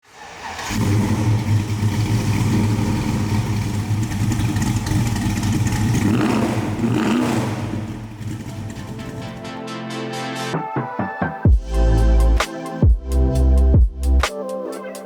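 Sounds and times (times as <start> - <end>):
car engine idling and revving: 0.1 - 9.4.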